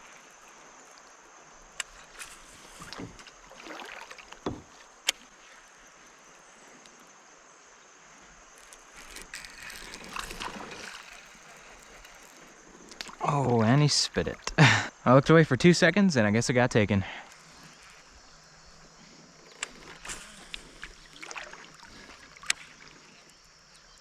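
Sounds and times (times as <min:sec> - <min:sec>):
water swishing: 0:00.0 - 0:05.4, 0:08.6 - 0:14.4, 0:17.4 - 0:23.4
rustling: 0:08.5 - 0:12.6.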